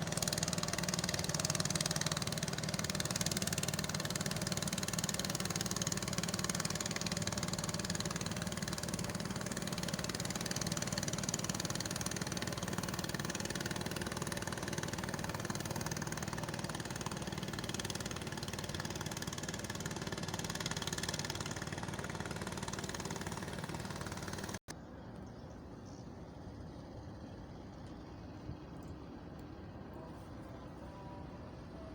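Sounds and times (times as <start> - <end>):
boat engine idling: 0.0 - 24.6.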